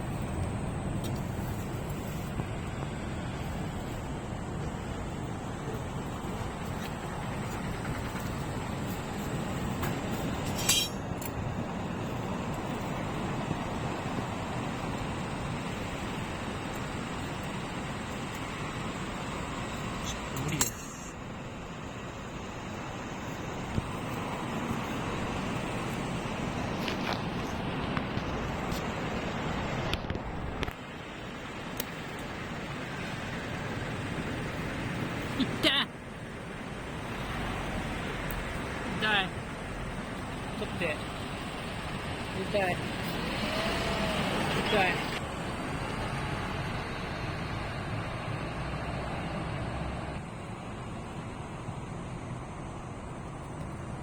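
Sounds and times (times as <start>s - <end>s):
sharp metallic clink: 10.4s - 11.4s, 20.4s - 21.2s.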